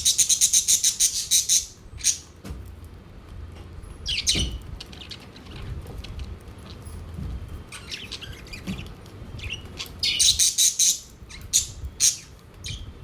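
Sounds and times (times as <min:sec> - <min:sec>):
budgerigars chirping: 0:00.0 - 0:02.3, 0:07.7 - 0:08.7, 0:09.4 - 0:12.9.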